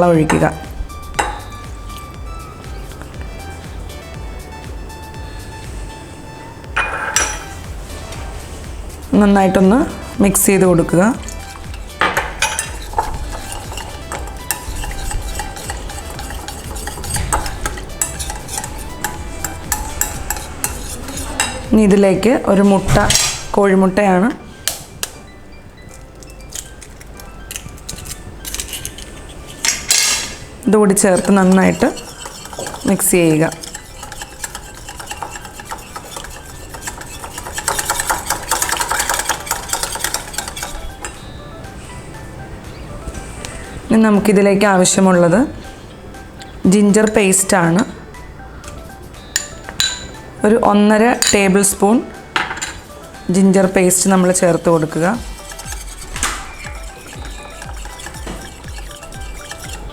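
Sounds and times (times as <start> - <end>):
utensil scraping and clicking on bowl: 10.6 - 23.5, 25.9 - 41.3, 48.7 - 50.2, 53.6 - 59.9.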